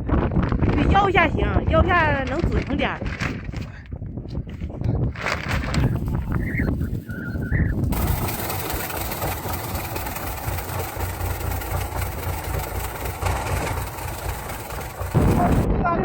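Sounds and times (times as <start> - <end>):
engine rumbling with hiss: 7.9 - 15.7.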